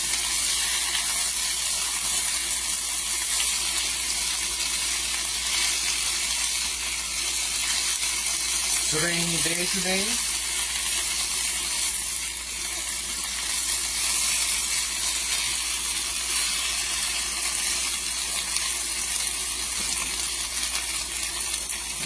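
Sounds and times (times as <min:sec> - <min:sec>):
potatoes sizzling in a pan: 0:00.0 - 0:22.0.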